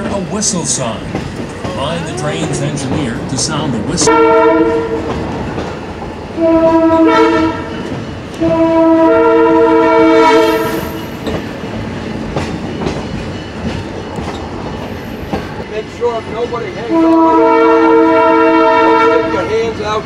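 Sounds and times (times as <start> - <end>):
train wheels clattering on rails: 0.0 - 20.0
locomotive air horn blasts: 4.0 - 5.1, 6.4 - 11.0, 16.9 - 19.4.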